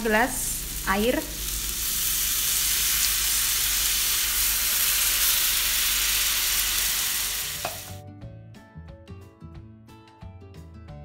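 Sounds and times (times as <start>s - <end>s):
sizzling in a frying pan: 0.0s - 8.0s
plucked-string background music: 7.5s - 11.0s.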